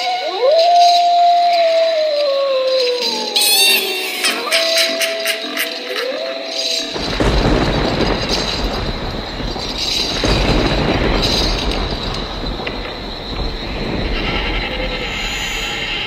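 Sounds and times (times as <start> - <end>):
train wheels rumbling on rails: 6.8 - 16.0.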